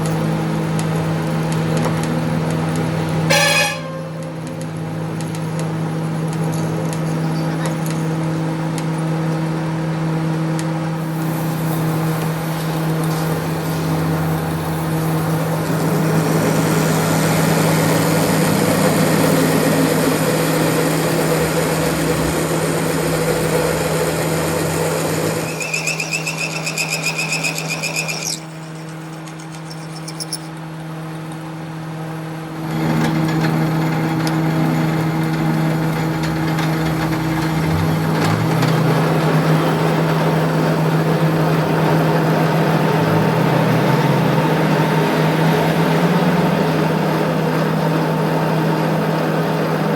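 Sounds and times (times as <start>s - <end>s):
fast pulsing high tone: 25.4s - 30.5s.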